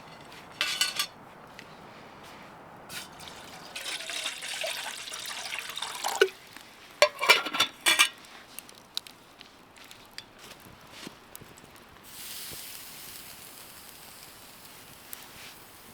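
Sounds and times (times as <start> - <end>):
cookware clinks and knocks: 0.0 - 1.2, 7.0 - 8.2
water pouring into container: 3.1 - 6.6.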